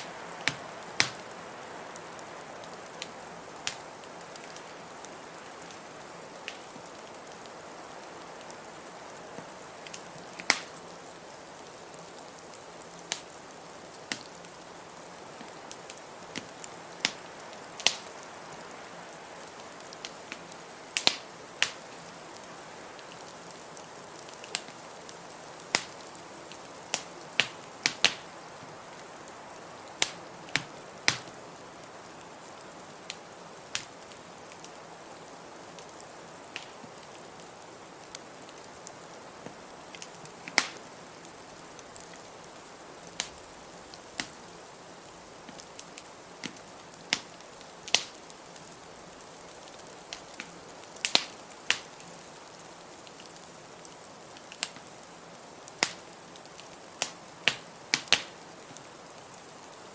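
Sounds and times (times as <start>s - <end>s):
sharp pops of fire: 0.0s - 1.4s, 3.0s - 4.7s, 6.4s - 6.8s, 9.4s - 10.8s, 13.1s - 13.3s, 15.4s - 18.2s, 20.0s - 21.9s, 25.7s - 28.3s, 30.0s - 31.4s, 33.1s - 34.7s, 36.5s - 36.8s, 39.4s - 40.9s, 43.2s - 43.4s, 45.4s - 48.3s, 50.1s - 52.2s, 54.5s - 54.9s, 55.8s - 58.7s
steady hiss: 0.0s - 59.9s
wood fire crackling: 0.0s - 59.9s.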